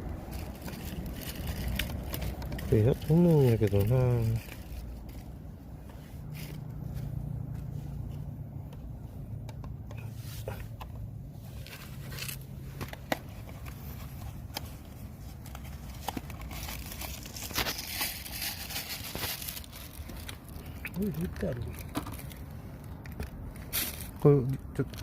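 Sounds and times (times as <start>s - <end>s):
parts scraping and clicking: 8.6s - 20.7s.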